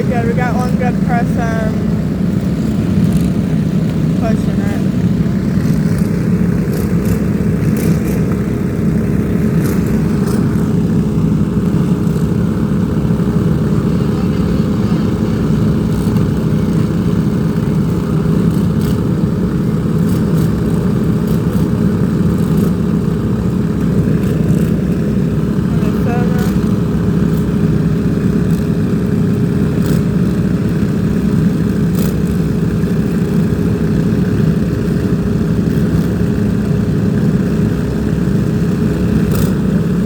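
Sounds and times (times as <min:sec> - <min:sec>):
steady engine drone: 0:00.0 - 0:40.0.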